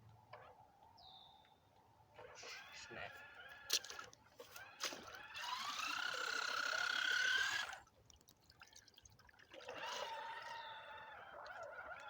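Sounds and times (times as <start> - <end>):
rc car motor whining: 4.6 - 7.8
wheels churning in muddy water: 9.5 - 12.0.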